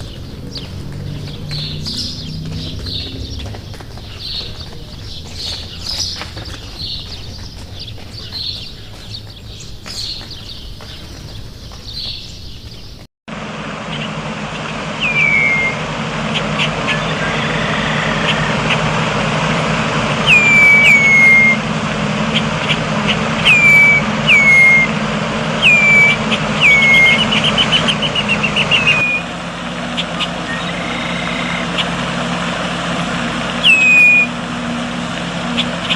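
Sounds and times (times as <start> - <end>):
background rumble with low hum: 0.0 - 13.0
bird trill: 0.0 - 13.0, 15.0 - 18.8, 20.2 - 21.6, 22.4 - 25.0, 25.6 - 29.3, 29.9 - 32.0, 33.6 - 34.4
songbird whistling calls: 15.0 - 15.8, 16.8 - 18.8, 20.2 - 21.6, 23.4 - 25.0, 25.6 - 29.3, 30.1 - 31.8, 33.6 - 34.4.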